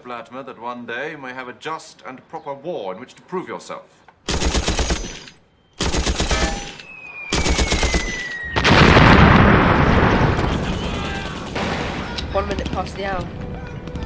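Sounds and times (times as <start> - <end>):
machine gun firing: 4.3 - 13.4
thin falling whistle: 6.4 - 8.9.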